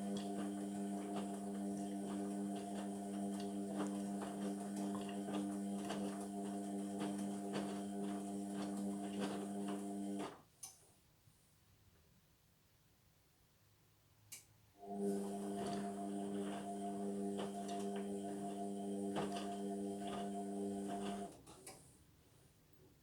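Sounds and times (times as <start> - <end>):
washing machine hum: 0.0 - 10.4, 14.8 - 21.5
click: 10.6 - 10.8, 14.3 - 14.5.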